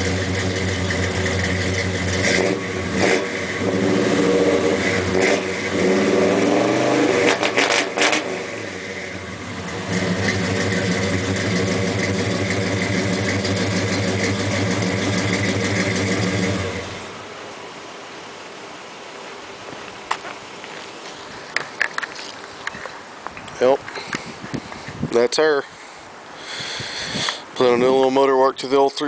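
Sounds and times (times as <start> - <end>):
car engine revving and idling: 0.0 - 17.5.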